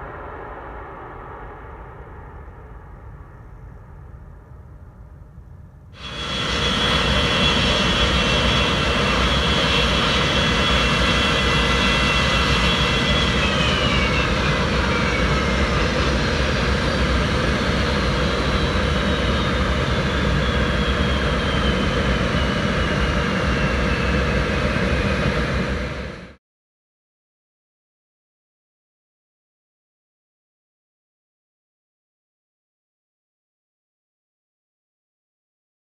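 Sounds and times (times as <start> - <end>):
jet engines rushing with whine: 0.0 - 26.4.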